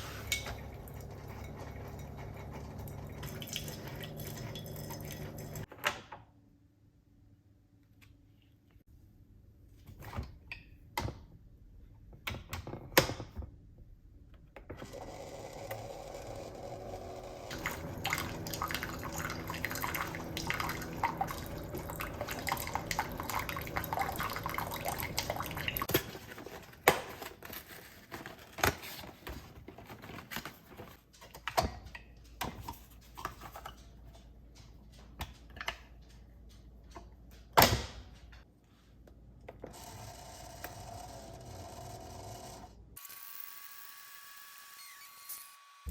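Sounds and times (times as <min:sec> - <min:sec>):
items being handled: 0:00.0 - 0:05.8, 0:17.5 - 0:39.6
water running from a tap: 0:02.0 - 0:05.7, 0:17.5 - 0:25.9.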